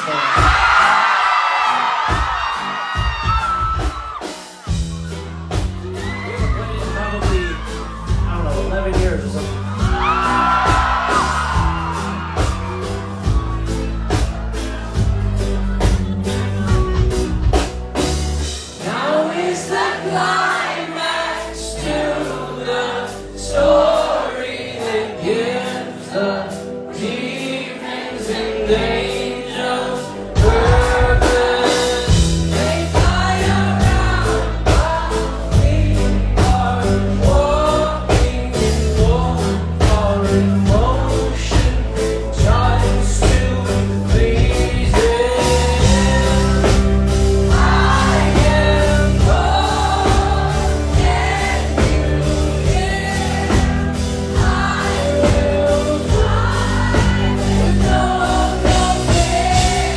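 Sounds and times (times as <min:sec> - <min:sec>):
drums: 0:00.0 - 0:59.9
heavy bass: 0:04.7 - 0:19.0, 0:30.1 - 0:59.9
person singing: 0:15.4 - 0:59.9.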